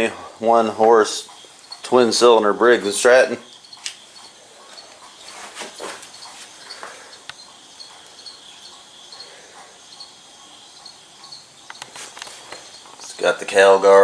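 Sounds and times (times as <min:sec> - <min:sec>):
crickets chirping: 0:00.0 - 0:14.0
handling knocks and rustles: 0:04.7 - 0:07.0.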